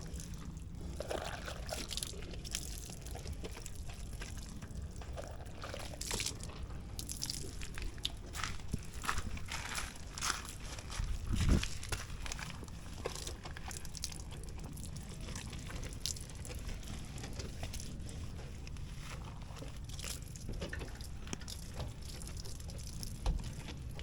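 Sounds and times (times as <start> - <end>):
water dripping: 0.0 - 9.0
steady low rumble: 0.0 - 24.0.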